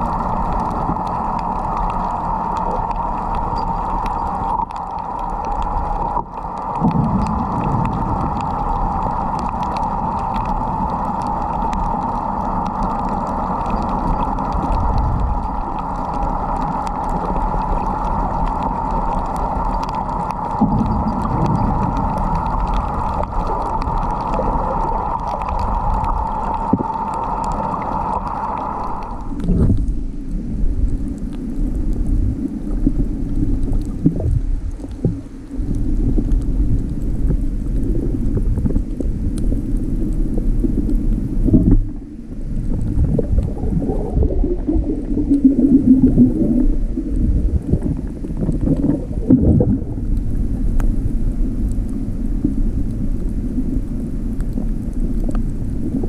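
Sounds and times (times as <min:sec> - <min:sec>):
low steady hum: 0:00.0 - 0:56.0
rumbling watery noise: 0:00.0 - 0:56.0.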